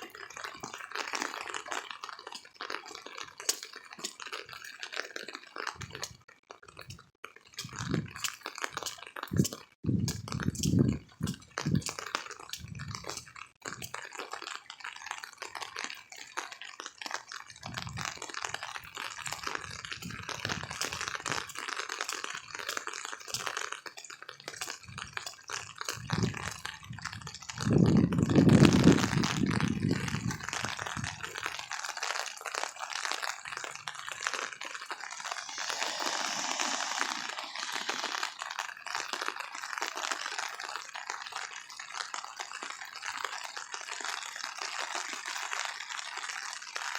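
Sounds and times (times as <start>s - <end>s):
heavy rain pouring: 34.8s - 40.6s.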